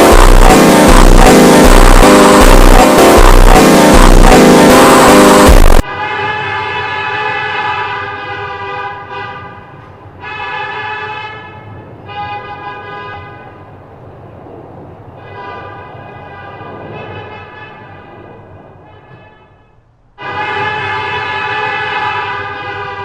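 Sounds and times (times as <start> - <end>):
low rumble: 0.0 - 5.8
train horn blasts: 0.0 - 13.5, 18.8 - 23.0.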